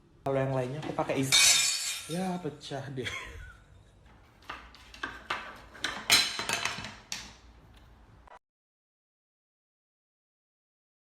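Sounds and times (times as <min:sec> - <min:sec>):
hard objects clinking: 0:04.4 - 0:07.4.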